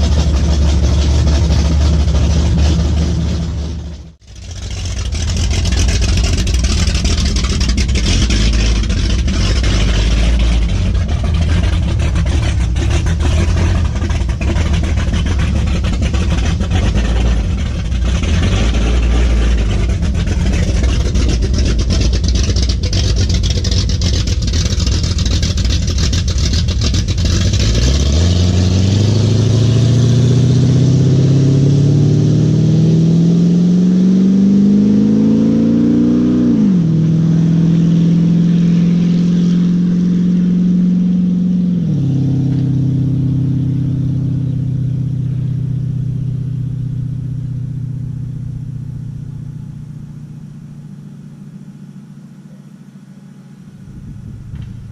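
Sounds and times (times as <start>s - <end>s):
engine rumbling and accelerating: 0.0s - 54.9s.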